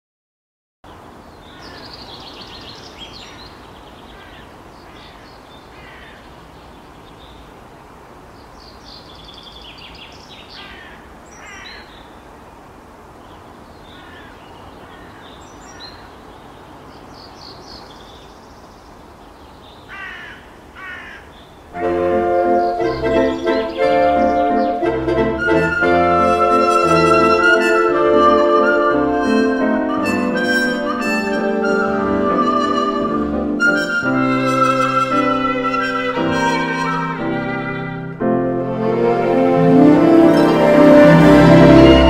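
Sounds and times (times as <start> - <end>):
birds calling harshly: 0.9 - 7.5, 8.4 - 12.2, 13.2 - 21.8, 22.4 - 24.8
music with keyboard chords: 21.8 - 42.0.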